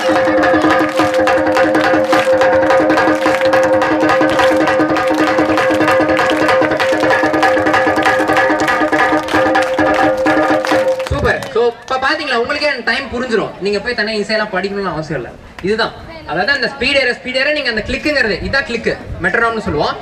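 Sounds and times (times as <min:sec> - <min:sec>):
frame drum struck with sticks: 0:00.0 - 0:11.0
audience clapping in time: 0:00.0 - 0:12.1.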